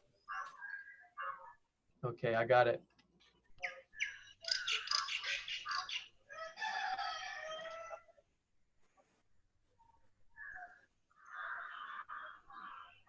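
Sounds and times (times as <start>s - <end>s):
birds calling: 3.6s - 7.0s.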